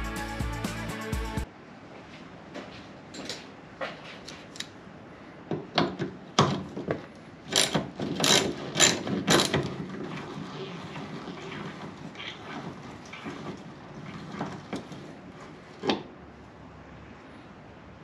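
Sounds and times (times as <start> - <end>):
hand tools clicking and clacking: 5.9 - 9.8.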